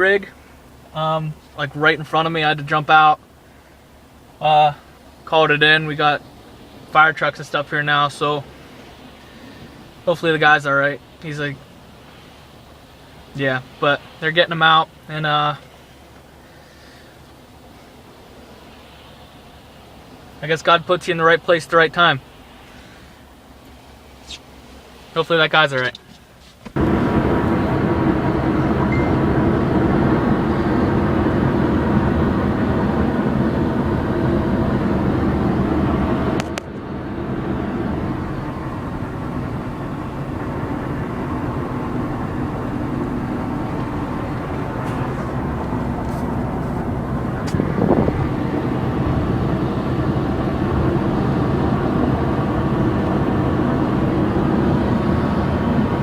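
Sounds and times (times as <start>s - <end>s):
vehicle engine and road noise: 0.0s - 56.0s.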